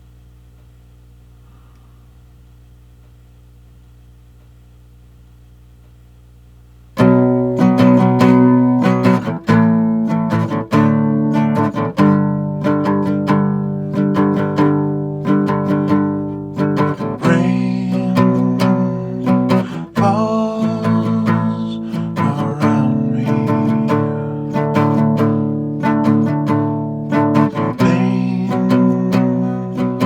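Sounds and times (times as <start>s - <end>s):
acoustic guitar picking and strumming: 7.0s - 30.0s.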